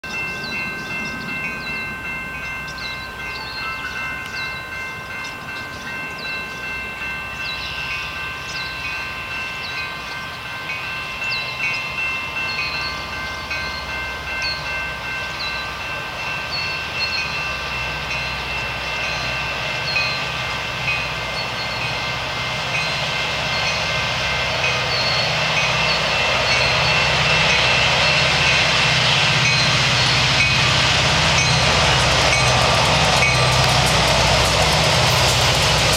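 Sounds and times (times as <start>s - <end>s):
locomotive rumble: 0.0s - 35.9s.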